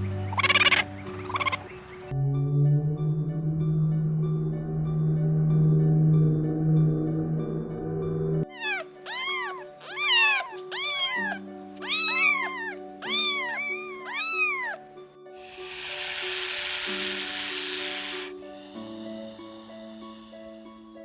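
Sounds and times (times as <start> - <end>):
cat hissing: 8.5 - 14.8, 15.4 - 20.7
cat meowing: 8.5 - 14.8.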